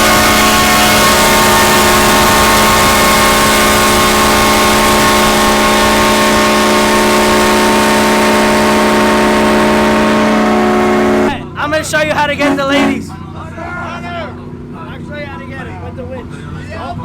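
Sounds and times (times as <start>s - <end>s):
electric winch motor whine: 0.0s - 11.4s.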